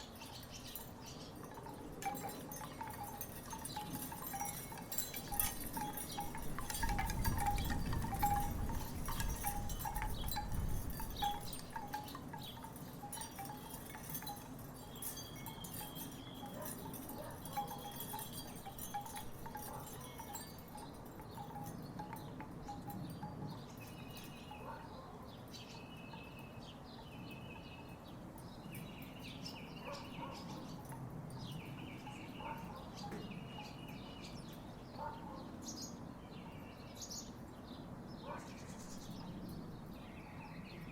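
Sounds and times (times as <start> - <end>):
wooden wind chimes knocking: 0.1 - 24.4.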